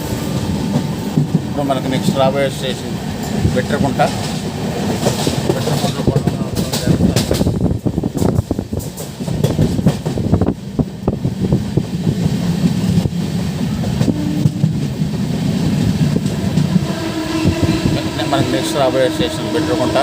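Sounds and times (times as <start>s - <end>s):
train wheels rumbling: 0.0s - 20.0s
clatter from the rails: 5.0s - 7.6s.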